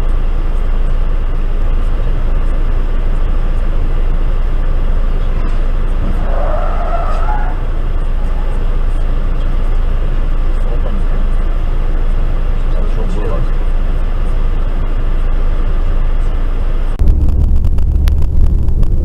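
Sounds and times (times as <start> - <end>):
car road and engine noise: 0.0 - 19.0
wavering squeal: 6.0 - 8.7.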